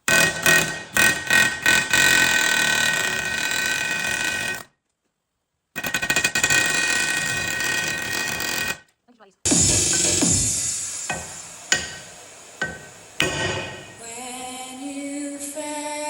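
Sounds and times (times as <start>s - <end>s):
hammer striking metal pin: 10.2s - 12.0s, 12.6s - 14.0s.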